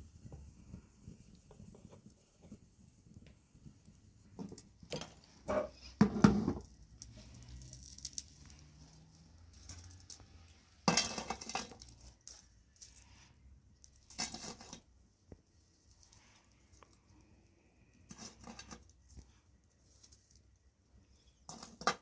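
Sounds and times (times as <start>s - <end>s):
dishes and cookware clinking: 10.8s - 11.8s.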